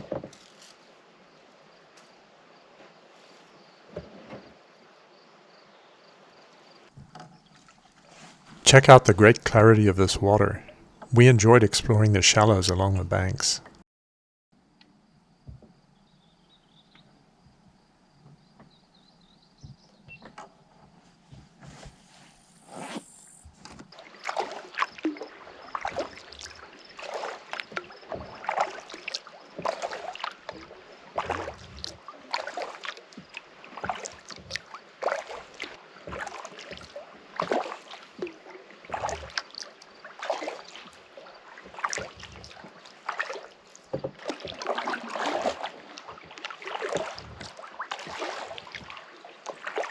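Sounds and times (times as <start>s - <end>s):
paddle strokes splashing water: 2.9s - 4.6s, 7.4s - 8.6s, 24.0s - 49.9s.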